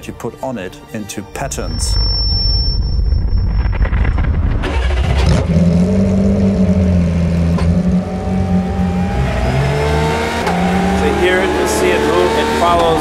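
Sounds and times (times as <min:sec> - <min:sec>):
racing engine revving: 0:04.5 - 0:13.0.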